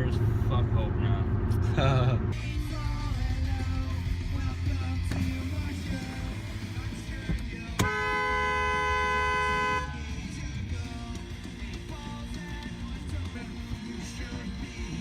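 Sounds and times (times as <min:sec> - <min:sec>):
car horn honking: 0:07.7 - 0:10.1.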